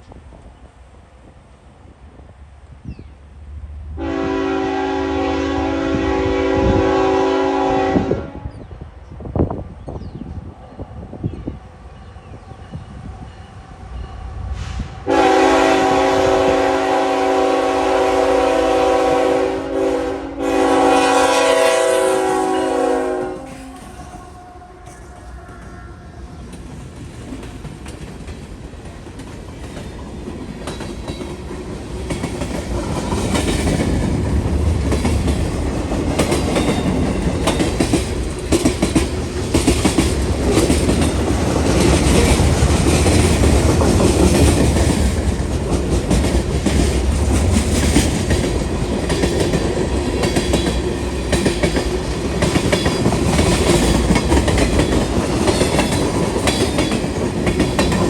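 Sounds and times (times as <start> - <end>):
freight train rumbling past: 0.0 - 58.0
wheels clacking over rail joints: 26.4 - 58.0.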